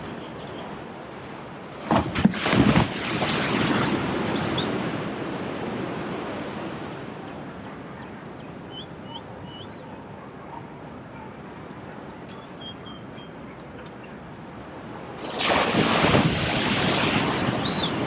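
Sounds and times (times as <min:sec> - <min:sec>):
bird chirps: 0:00.0 - 0:01.4, 0:04.2 - 0:04.7, 0:07.2 - 0:10.0, 0:12.2 - 0:14.2, 0:17.6 - 0:18.0
sea waves breaking: 0:00.0 - 0:09.4, 0:13.3 - 0:18.0.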